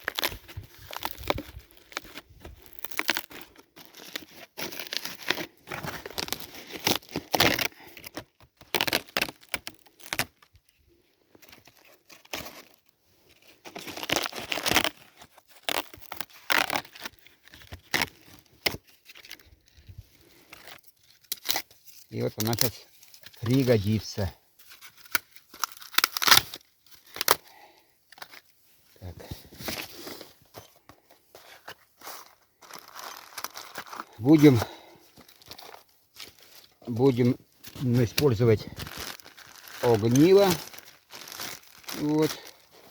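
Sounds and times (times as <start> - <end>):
bark tearing and rustling: 0.0 - 10.5, 13.6 - 24.0, 24.6 - 27.4, 37.7 - 42.9.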